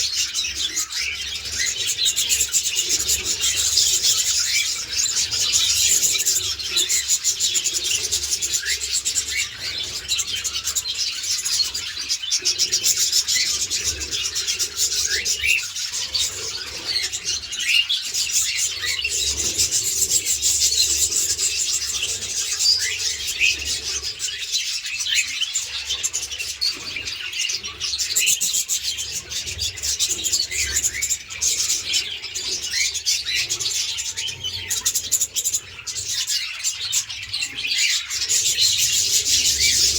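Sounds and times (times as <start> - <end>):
parrots chattering: 0.0 - 39.9.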